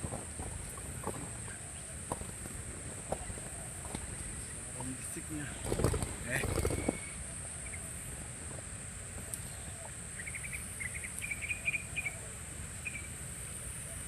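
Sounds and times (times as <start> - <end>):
insects trilling: 0.0 - 14.0
small bird chirping: 3.1 - 8.1, 9.3 - 14.0.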